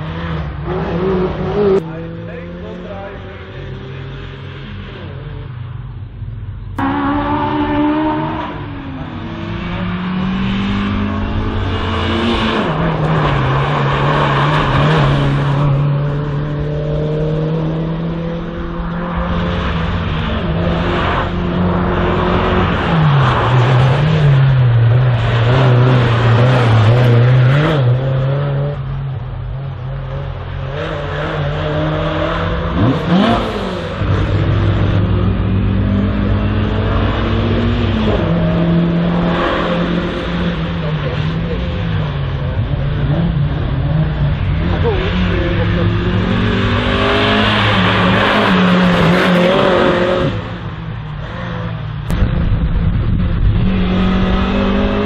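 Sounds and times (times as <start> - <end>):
race car engine accelerating: 6.8 - 29.1, 30.0 - 55.0.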